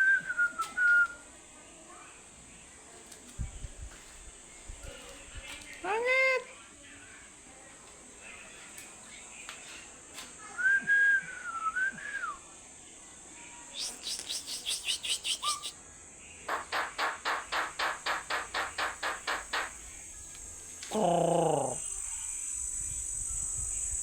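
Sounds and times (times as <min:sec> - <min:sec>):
bird whistling a wavering note: 0:13.8 - 0:15.7
bird chattering calls: 0:13.8 - 0:15.8, 0:16.5 - 0:19.8.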